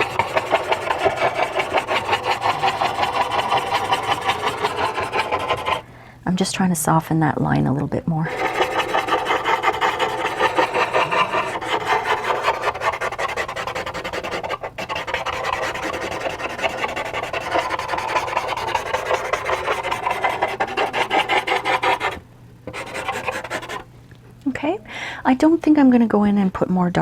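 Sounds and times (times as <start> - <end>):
blending tool rubbing paper: 0.0 - 5.8, 8.2 - 23.9.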